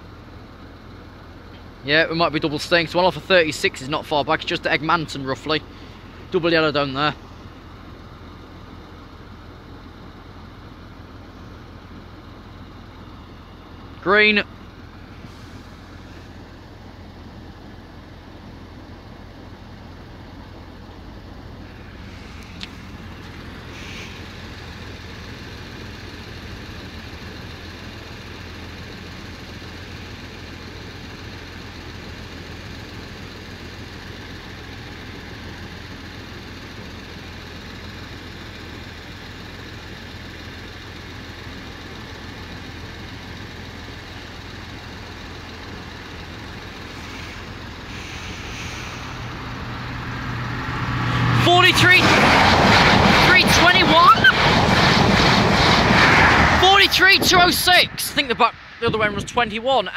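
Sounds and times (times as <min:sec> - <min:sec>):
low background rumble: 0:00.0 - 0:59.9
approaching high-speed train: 0:47.0 - 0:59.2.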